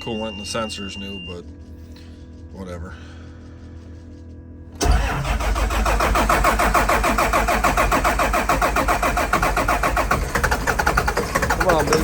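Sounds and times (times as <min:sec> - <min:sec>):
diesel engine cranking: 0:03.1 - 0:12.0.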